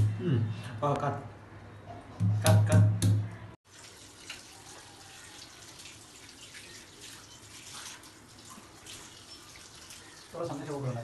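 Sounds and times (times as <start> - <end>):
water running: 3.6 - 11.0.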